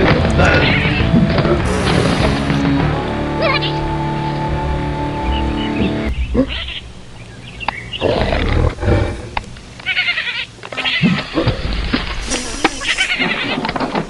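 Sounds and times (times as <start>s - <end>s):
music: 0.0s - 6.9s
cartoon animal sound effects: 12.2s - 13.6s.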